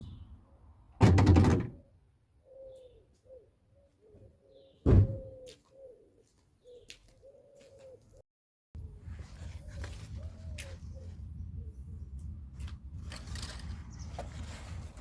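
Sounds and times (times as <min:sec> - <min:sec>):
pigeons cooing: 0:02.4 - 0:08.2
car door shutting: 0:04.9 - 0:05.3.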